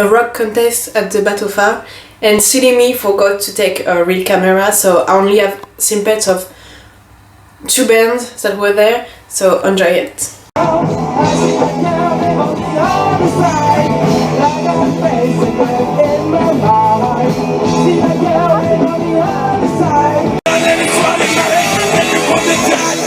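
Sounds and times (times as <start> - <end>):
live rock band with singer: 10.6 - 23.0.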